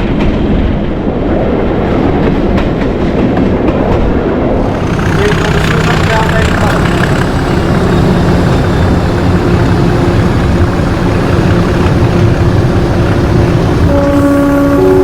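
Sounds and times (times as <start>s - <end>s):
locomotive diesel engine running: 4.6s - 15.0s.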